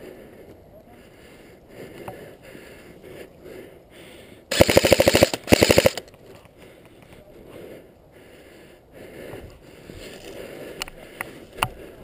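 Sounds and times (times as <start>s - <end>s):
airsoft gun full-auto bursts: 4.5s - 6.1s.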